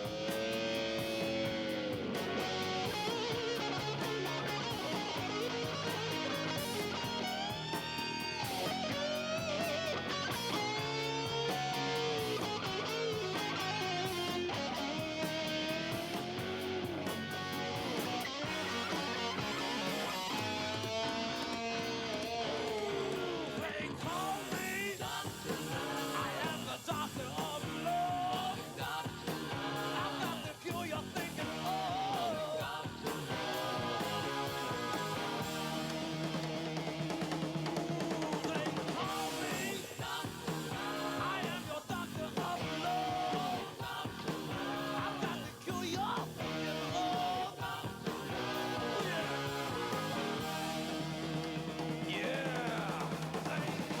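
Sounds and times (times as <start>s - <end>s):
electric guitar bending notes: 0.0s - 23.9s
rock band playing: 0.0s - 54.0s.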